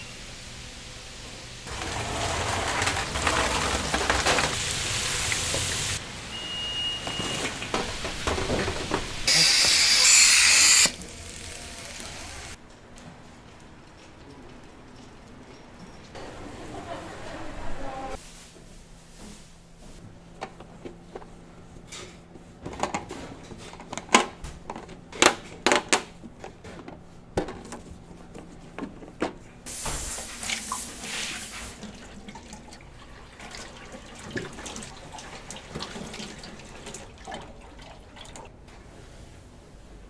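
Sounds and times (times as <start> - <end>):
tap water rushing: 1.7 - 6.0, 7.0 - 12.6
kitchen knocks and clicks: 7.1 - 9.3.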